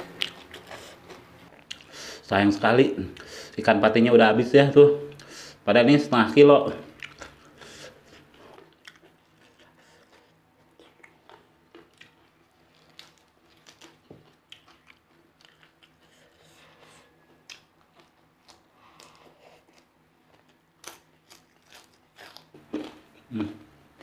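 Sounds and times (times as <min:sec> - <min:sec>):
person chewing crunchy raw food: 0:00.0 - 0:02.0, 0:06.9 - 0:23.6.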